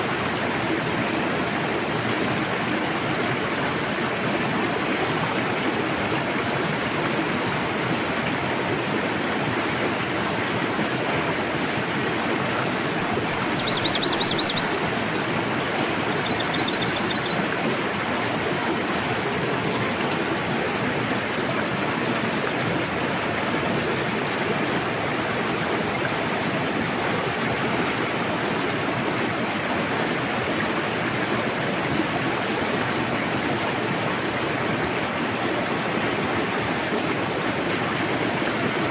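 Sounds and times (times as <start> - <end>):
river rushing: 0.6 - 28.6
small bird trilling: 13.0 - 14.8, 15.9 - 17.4.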